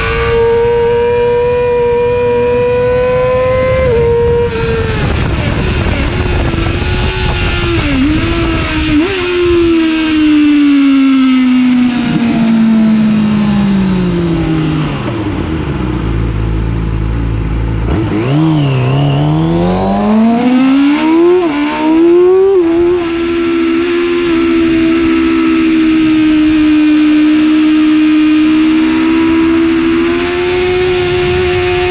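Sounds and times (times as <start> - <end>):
motorcycle engine revving: 0.0 - 31.9
quick gear upshifts: 0.0 - 31.9
wind rush: 2.6 - 26.9.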